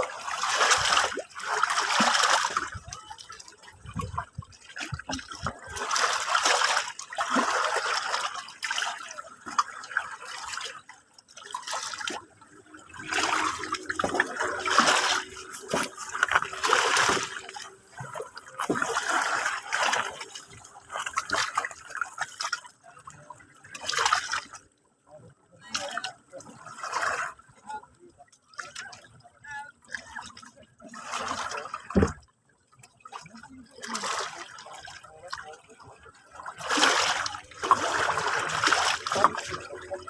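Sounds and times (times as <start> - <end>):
water lapping at shore: 0.0 - 40.0.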